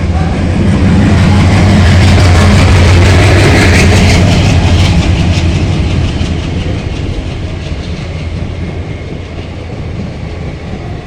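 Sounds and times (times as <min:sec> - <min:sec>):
train rumble: 0:00.0 - 0:11.0
train wheels clacking on rail joints: 0:01.2 - 0:11.0.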